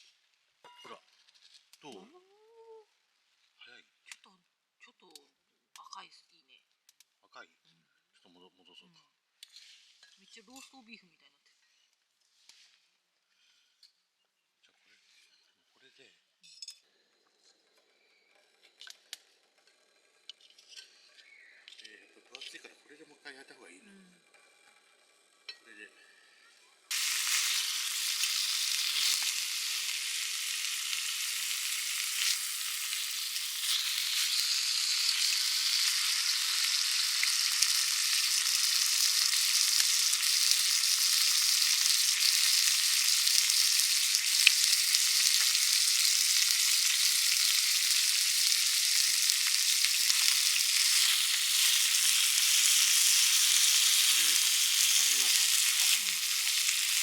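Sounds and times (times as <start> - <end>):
beef sizzling: 26.9 - 57.0.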